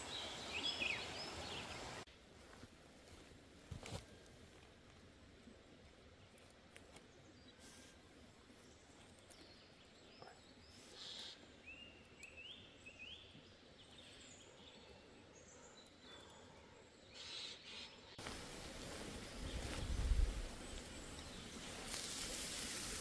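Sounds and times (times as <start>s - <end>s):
faint bird chirps: 8.6s - 18.2s.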